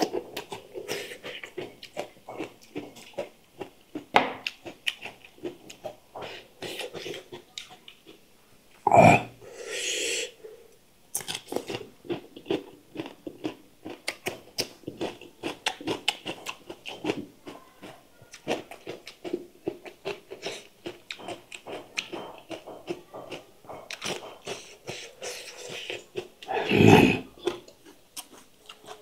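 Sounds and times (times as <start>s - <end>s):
crisp cucumber crunching: 11.1s - 26.4s, 27.4s - 29.0s.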